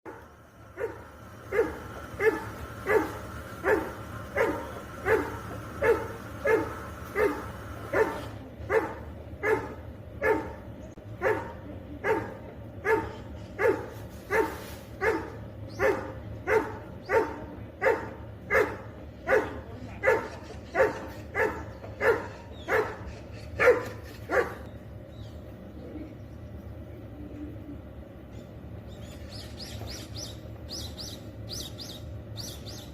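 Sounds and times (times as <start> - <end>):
dog barking: 0.8 - 10.6, 11.2 - 24.7.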